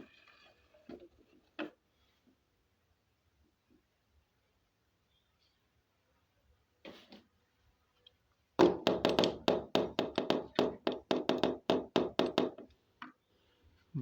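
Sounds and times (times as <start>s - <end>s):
rapid knocking on hard surface: 8.6s - 12.7s.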